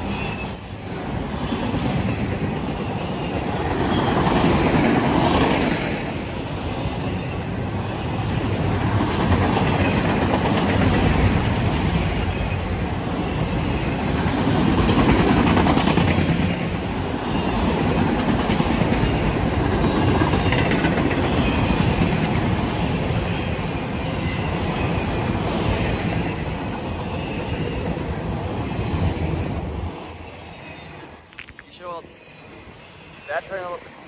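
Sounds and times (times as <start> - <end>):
freight train wheels rumbling: 0.0 - 34.0.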